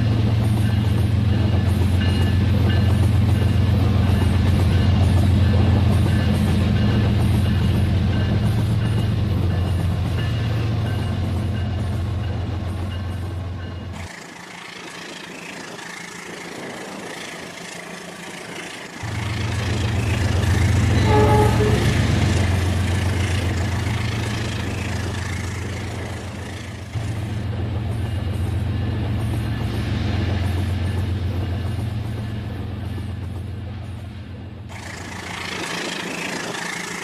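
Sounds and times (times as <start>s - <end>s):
model train rumbling on track: 0.0s - 37.0s
train horn tone: 20.8s - 22.6s.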